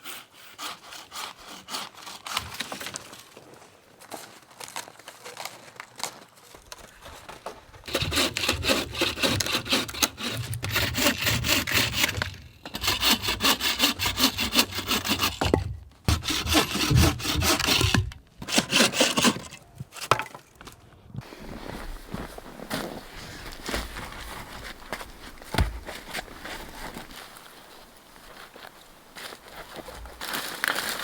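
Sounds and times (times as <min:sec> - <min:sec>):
hand saw cutting log: 0:00.0 - 0:02.8, 0:07.8 - 0:19.6.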